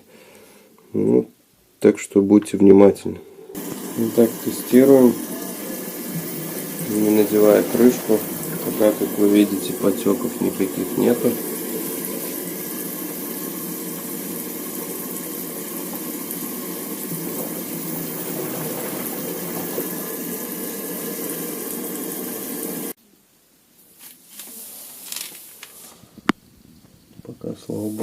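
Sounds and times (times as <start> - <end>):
water running in washing machine: 3.5 - 23.0.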